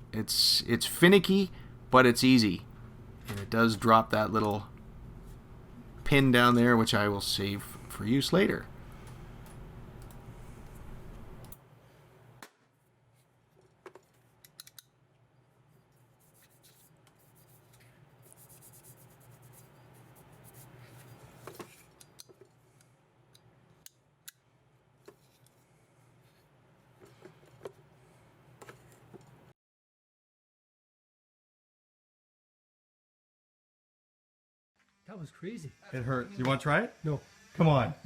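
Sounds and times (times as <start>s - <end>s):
clicks of small parts and tools: 13.6s - 14.9s.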